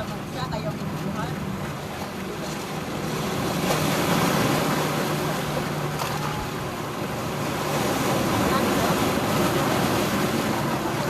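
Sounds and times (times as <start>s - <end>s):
sea surf washing on shore: 0.0s - 11.0s.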